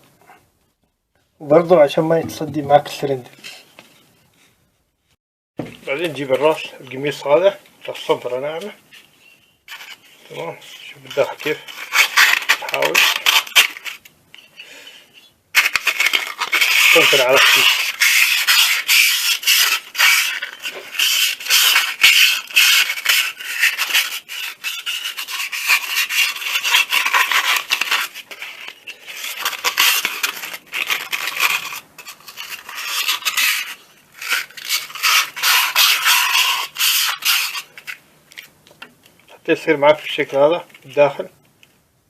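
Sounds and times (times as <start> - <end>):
sandpaper rubbing inside metal cylinder: 10.6 - 14.0, 15.6 - 38.0.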